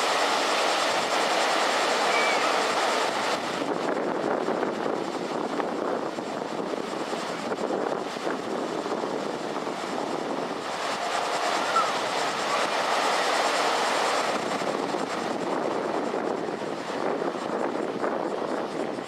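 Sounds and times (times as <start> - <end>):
ocean waves breaking: 0.0 - 3.8, 9.7 - 15.4.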